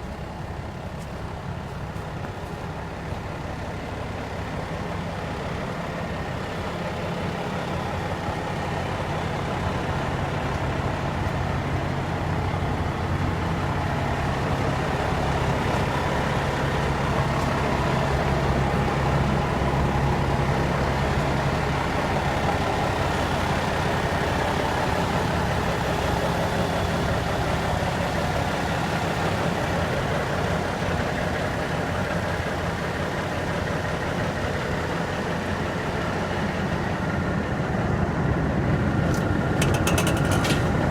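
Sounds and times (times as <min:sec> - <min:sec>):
truck diesel engine running: 0:00.0 - 0:40.9.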